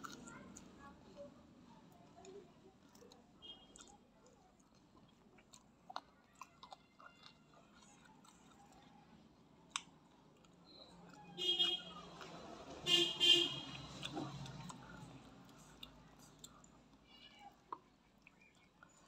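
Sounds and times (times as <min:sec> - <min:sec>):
faint chewing: 0:00.0 - 0:19.0
wet mouth clicks: 0:13.7 - 0:17.0.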